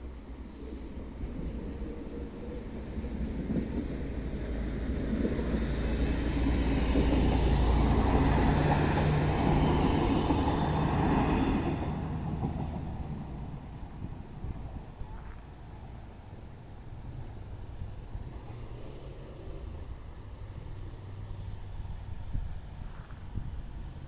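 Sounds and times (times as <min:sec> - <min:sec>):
diesel train engine: 0:00.0 - 0:24.0
train wheels rumbling: 0:01.0 - 0:14.8.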